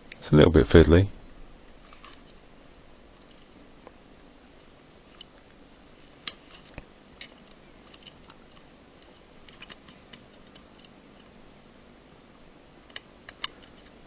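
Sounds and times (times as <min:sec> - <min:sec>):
small tools clicking and tapping: 0:12.9 - 0:14.0.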